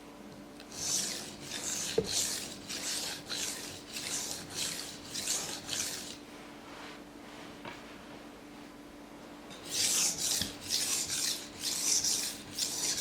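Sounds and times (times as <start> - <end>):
knife scraping on whetstone: 0.7 - 6.2, 9.6 - 13.0.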